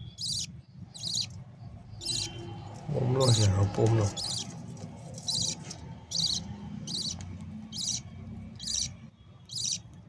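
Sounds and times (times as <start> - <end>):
budgie chick begging calls: 0.0 - 1.4, 2.0 - 2.4, 4.1 - 4.5, 5.2 - 9.8.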